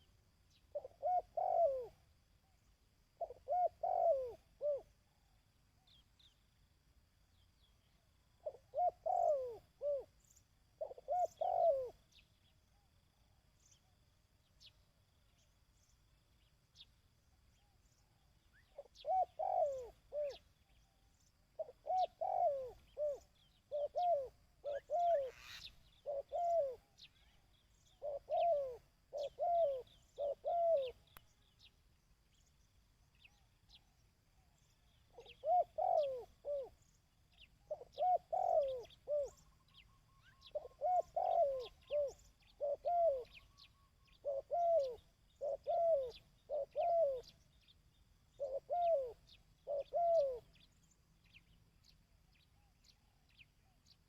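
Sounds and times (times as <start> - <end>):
dove cooing: 0.7 - 2.2, 3.2 - 5.0, 8.4 - 10.2, 10.8 - 12.2, 18.6 - 20.6, 21.5 - 31.1, 35.1 - 47.6, 48.3 - 50.7
small birds chirping: 7.3 - 54.0.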